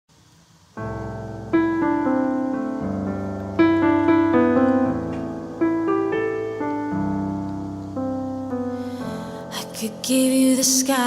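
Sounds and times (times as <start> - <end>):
slow piano music: 0.7 - 11.0.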